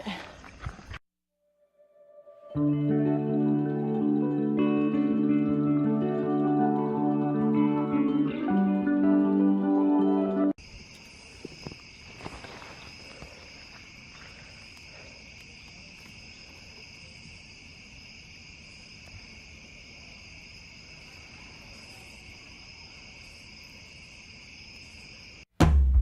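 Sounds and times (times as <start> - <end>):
insects trilling: 10.6 - 25.4.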